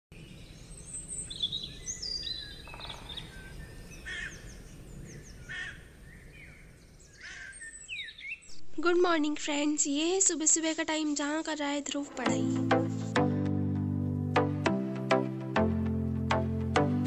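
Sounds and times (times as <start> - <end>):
birds chirping and calling: 0.2 - 8.6.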